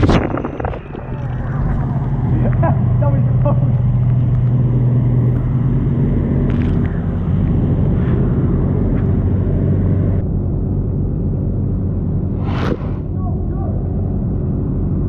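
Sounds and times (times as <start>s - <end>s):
motor humming: 0.0s - 10.2s
noisy rush: 0.0s - 15.0s.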